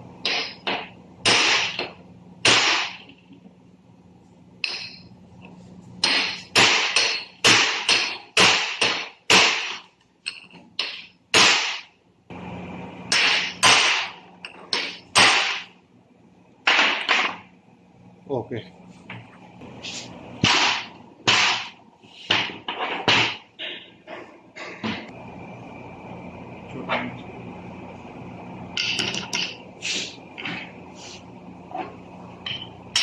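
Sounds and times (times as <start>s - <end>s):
hammer striking metal: 0.2s - 3.1s, 6.0s - 11.9s, 13.1s - 15.7s, 32.4s - 33.0s.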